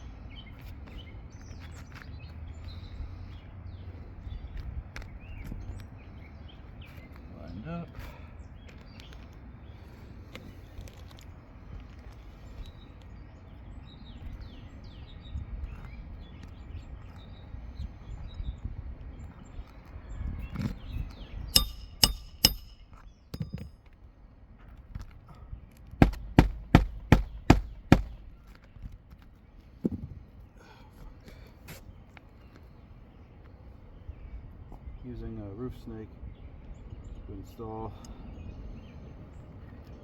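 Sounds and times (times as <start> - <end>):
hammer blows with metallic ring: 21.6 - 23.7, 26.0 - 28.3.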